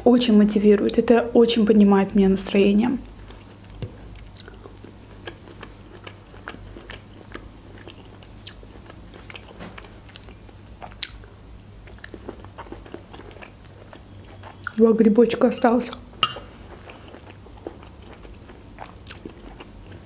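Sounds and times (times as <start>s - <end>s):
person chewing food: 3.0s - 14.8s, 16.2s - 20.0s.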